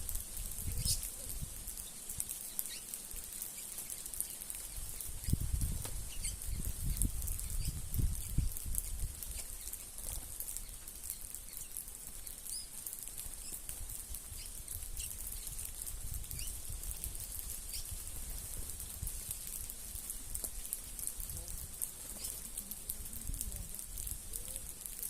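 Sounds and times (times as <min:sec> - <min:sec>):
steady high hiss: 0:00.0 - 0:25.0
birds chirping and calling: 0:00.4 - 0:18.1, 0:21.9 - 0:22.8.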